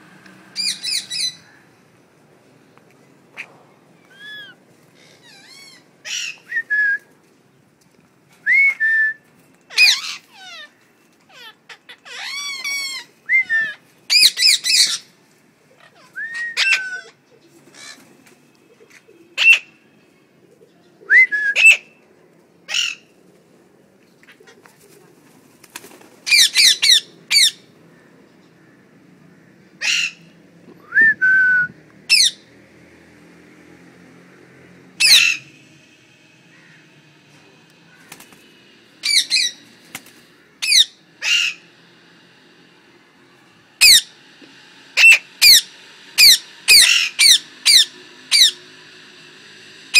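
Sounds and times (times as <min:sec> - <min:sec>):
parrots whistling and squawking: 0:00.6 - 0:01.5, 0:04.1 - 0:07.0, 0:09.7 - 0:15.2, 0:15.8 - 0:18.0, 0:19.4 - 0:19.8, 0:21.1 - 0:22.0, 0:22.7 - 0:23.1, 0:26.2 - 0:27.7, 0:29.8 - 0:30.3, 0:32.1 - 0:32.5, 0:35.0 - 0:35.6, 0:39.0 - 0:39.7, 0:40.6 - 0:42.2, 0:43.8 - 0:48.6.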